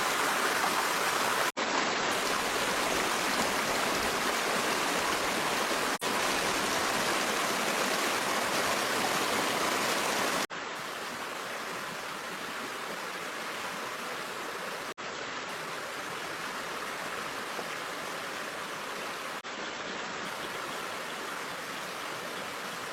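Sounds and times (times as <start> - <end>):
stream water rushing: 0.0 - 22.9.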